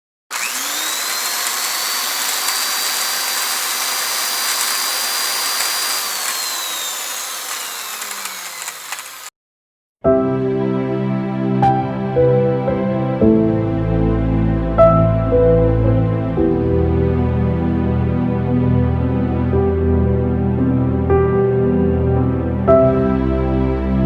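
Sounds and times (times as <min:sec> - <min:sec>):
motor-driven tool whining: 0:00.3 - 0:09.3.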